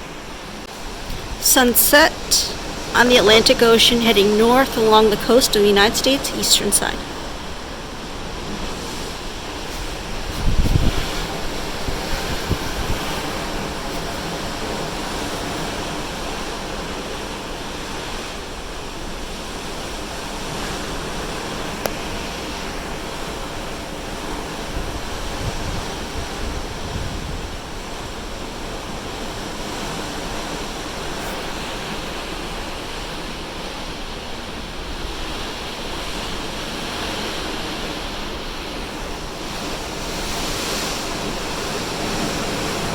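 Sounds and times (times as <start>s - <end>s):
ocean waves rushing: 0.0s - 42.9s
wind buffeting microphone: 7.1s - 16.1s, 24.5s - 28.4s.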